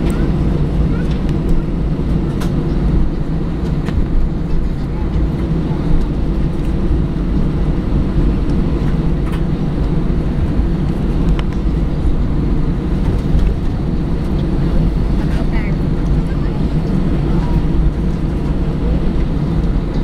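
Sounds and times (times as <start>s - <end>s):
jet engines rumbling in cabin: 0.0s - 20.0s.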